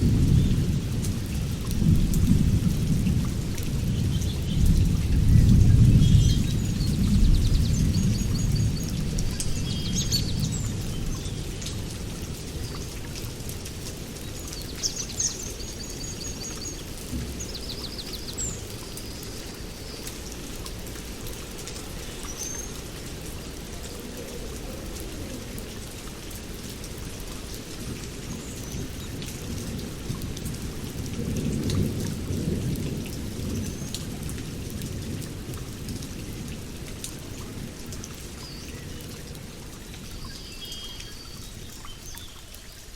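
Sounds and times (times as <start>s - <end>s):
rolling thunder: 0.0s - 12.0s
steady rain: 0.0s - 42.9s.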